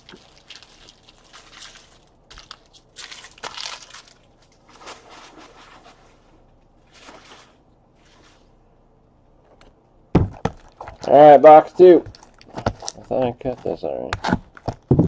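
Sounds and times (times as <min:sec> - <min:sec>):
foil and paper crinkling: 0:00.0 - 0:06.0.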